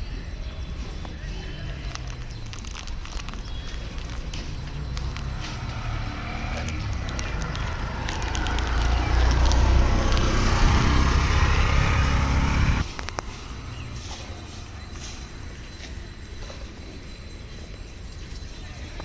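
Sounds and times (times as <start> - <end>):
street background: 0.0 - 19.0
motor vehicle passing: 1.6 - 14.9.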